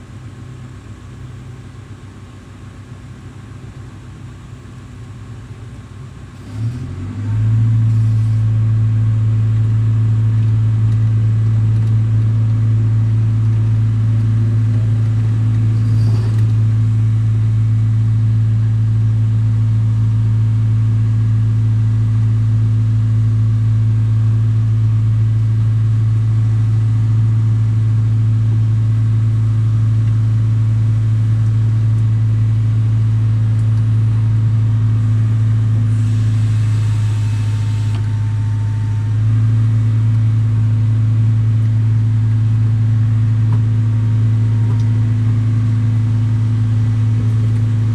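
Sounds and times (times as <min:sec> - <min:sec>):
excavator diesel engine revving: 0:06.2 - 0:20.0, 0:29.2 - 0:47.9.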